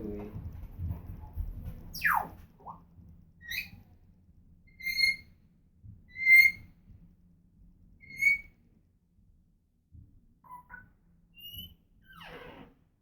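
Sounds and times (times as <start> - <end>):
parrot whistling: 1.9 - 2.3, 3.4 - 3.7, 4.7 - 5.2, 6.1 - 6.6, 8.0 - 8.5.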